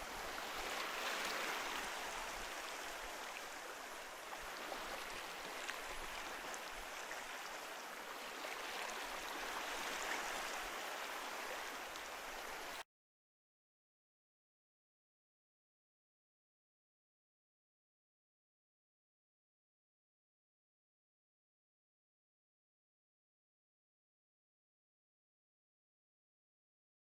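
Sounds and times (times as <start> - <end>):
ocean surf washing on shore: 0.0 - 12.8.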